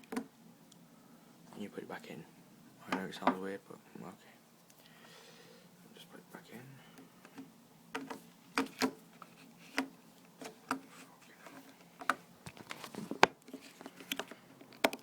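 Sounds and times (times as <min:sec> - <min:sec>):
plastic phone clicks and taps: 0:14.0 - 0:15.0.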